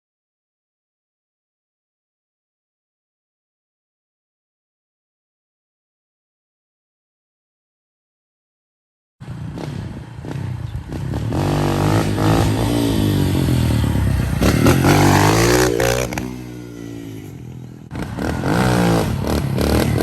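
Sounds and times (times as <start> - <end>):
vehicle engine revving: 9.2 - 20.0.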